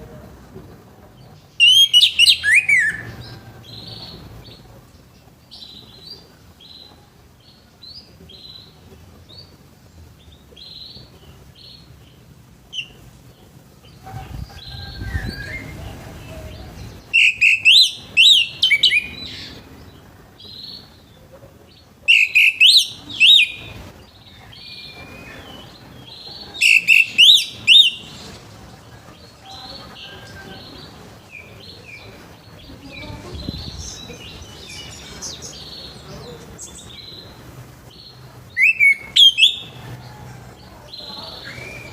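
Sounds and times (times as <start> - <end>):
thrush whistled song: 1.6 - 3.2, 17.1 - 19.2, 22.1 - 23.8, 26.6 - 28.2, 38.6 - 39.8.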